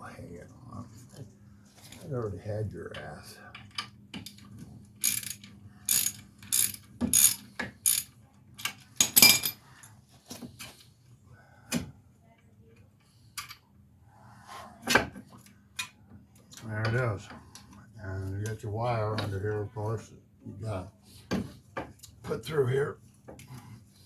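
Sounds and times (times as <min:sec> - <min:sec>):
tools clicking and knocking on metal: 0:02.9 - 0:09.6.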